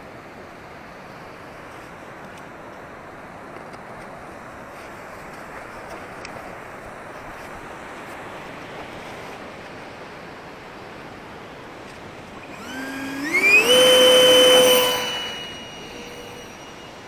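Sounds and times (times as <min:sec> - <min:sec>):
electric ducted fan whining: 0:12.0 - 0:17.0.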